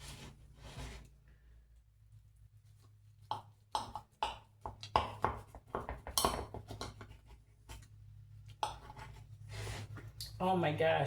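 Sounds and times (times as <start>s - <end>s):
utensil scraping pie dish: 8.6s - 10.2s.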